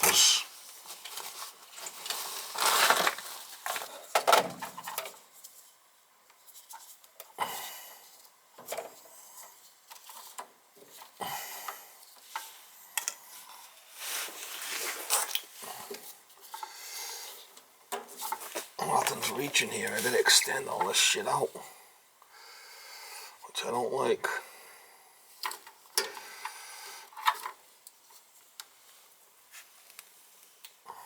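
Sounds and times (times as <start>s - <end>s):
rummaging through tools: 0.0s - 5.6s, 14.0s - 16.6s.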